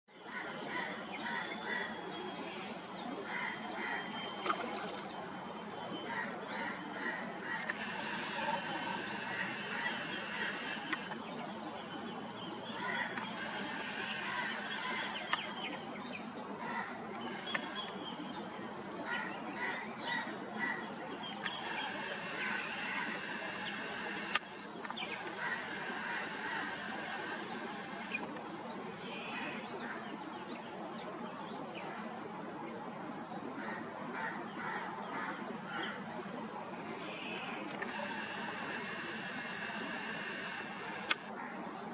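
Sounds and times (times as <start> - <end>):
insects droning: 0.2 - 41.9
birds chirping and whistling: 0.8 - 29.7
sharp clicks: 7.4 - 11.2, 13.1 - 15.6, 17.1 - 18.0, 21.3 - 28.5, 37.6 - 41.4.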